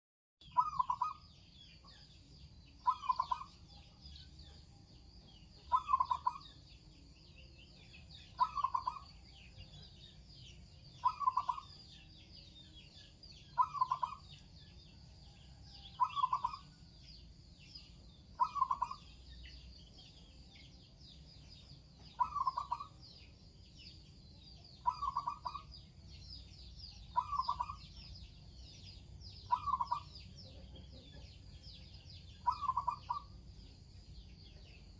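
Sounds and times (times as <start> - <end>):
dove cooing: 0.6 - 1.2, 2.8 - 3.5, 5.7 - 6.4, 8.4 - 9.1, 11.0 - 11.7, 13.6 - 14.2, 16.0 - 16.6, 18.4 - 19.0, 22.2 - 22.9, 24.8 - 25.7, 27.1 - 27.8, 29.5 - 30.1, 32.4 - 33.3.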